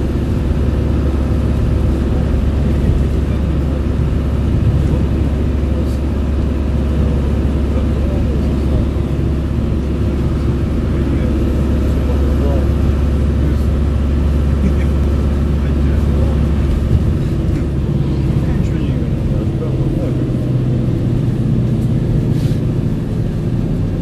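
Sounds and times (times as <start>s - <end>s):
car road and engine noise: 0.0s - 24.0s.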